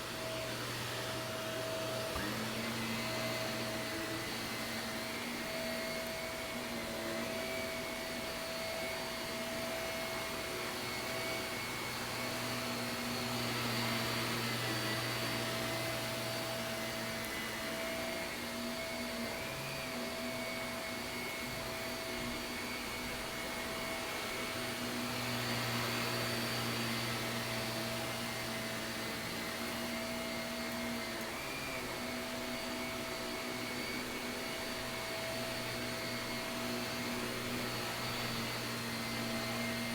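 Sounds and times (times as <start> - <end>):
vacuum cleaner whining on carpet: 0.0 - 39.9.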